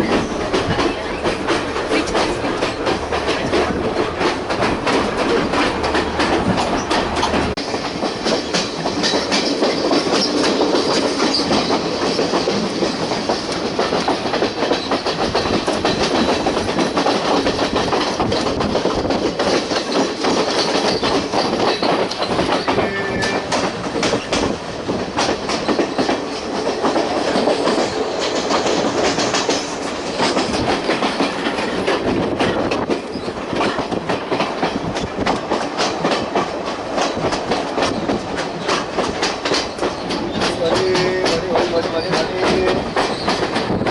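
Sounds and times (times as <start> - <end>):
train rumble and rattle: 0.0 - 43.9
wheels clicking over rail joints: 0.0 - 43.9.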